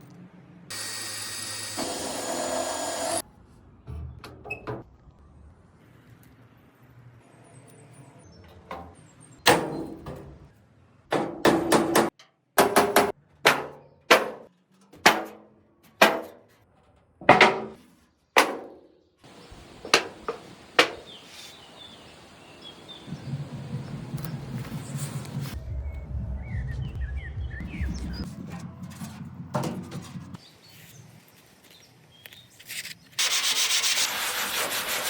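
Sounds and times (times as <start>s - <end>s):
hammer striking metal: 11.1s - 16.4s, 19.9s - 21.1s.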